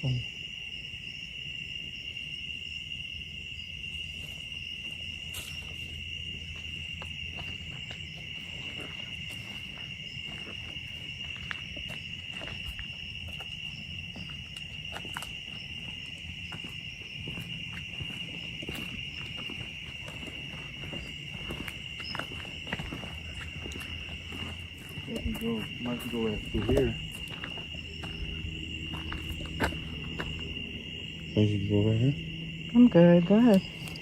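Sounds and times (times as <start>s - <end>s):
night insects buzzing: 0.0s - 34.0s.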